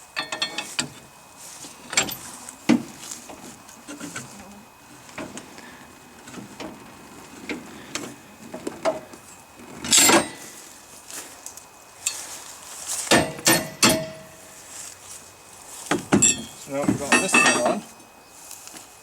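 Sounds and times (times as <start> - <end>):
metal chain clinking and clanking: 0.2 - 1.0, 1.9 - 2.3, 9.7 - 10.5, 13.1 - 14.4, 16.2 - 17.9.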